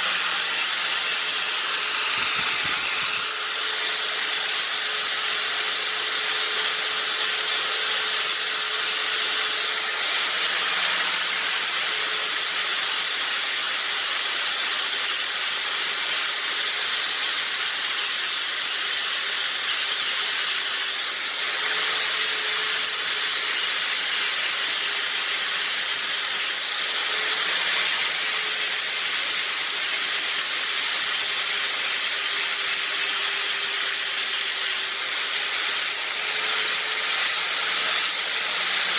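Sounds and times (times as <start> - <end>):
angle grinder grinding metal: 0.0 - 38.9.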